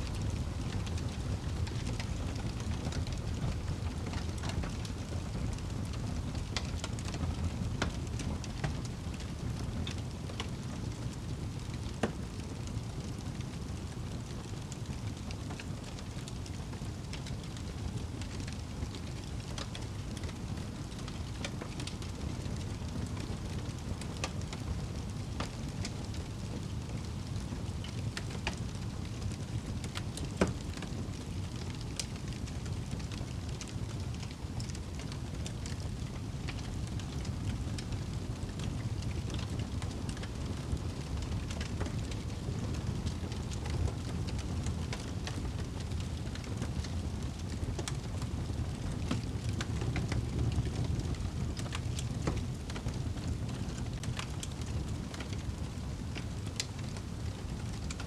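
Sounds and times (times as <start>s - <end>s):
fire popping and snapping: 0.0s - 58.0s
wood fire crackling: 0.0s - 58.0s.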